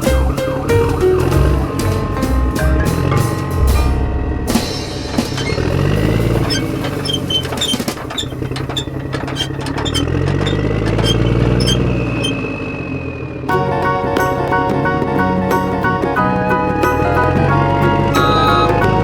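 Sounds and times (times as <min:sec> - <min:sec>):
vehicle engine revving: 0:02.8 - 0:13.5.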